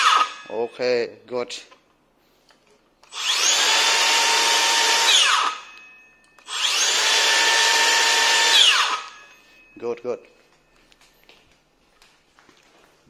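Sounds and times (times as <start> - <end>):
circular saw motor whine: 3.1 - 5.7, 6.4 - 9.2.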